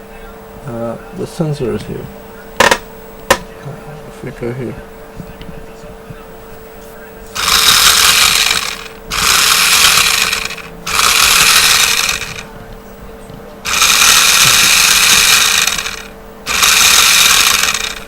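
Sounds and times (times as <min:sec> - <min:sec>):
toy car motor whirring: 0:07.4 - 0:12.5, 0:13.7 - 0:18.0.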